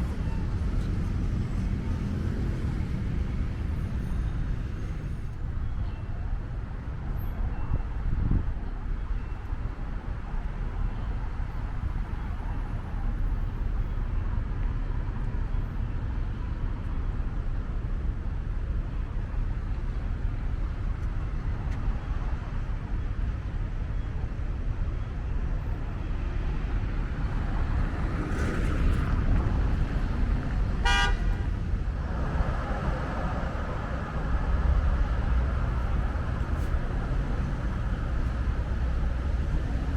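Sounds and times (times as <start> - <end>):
city traffic rumble: 0.0 - 39.9
car horn toot: 30.8 - 31.5.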